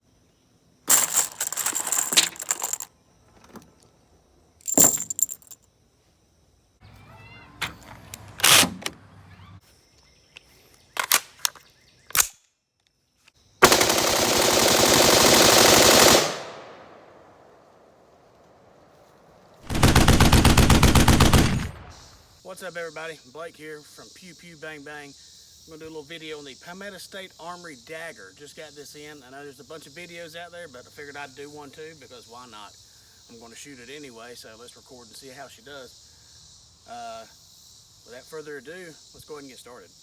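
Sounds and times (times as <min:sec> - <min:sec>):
automatic gunfire bursts: 0:13.6 - 0:16.8, 0:19.7 - 0:22.0
gunshots: 0:19.7 - 0:22.2.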